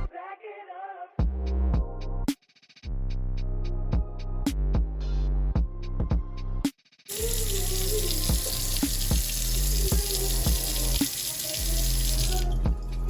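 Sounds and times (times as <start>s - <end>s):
hip-hop music with beat: 3.6s - 13.0s.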